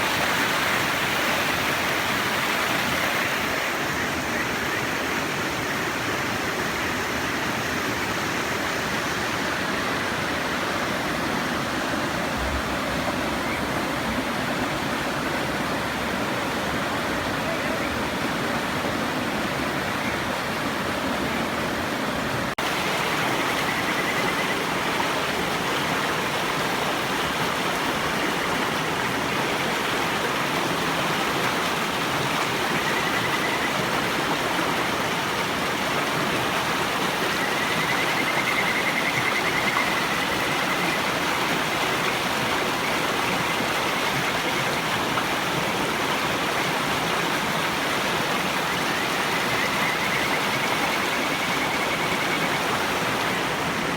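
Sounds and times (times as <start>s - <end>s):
river water rushing: 0.0s - 53.9s
frogs trilling: 22.6s - 30.4s, 31.8s - 35.6s, 36.4s - 45.1s, 48.3s - 53.6s.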